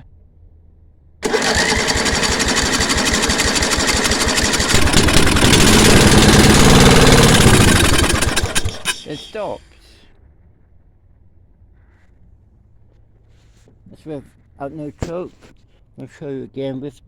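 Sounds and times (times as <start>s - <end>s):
petrol engine running rough: 1.2s - 9.3s.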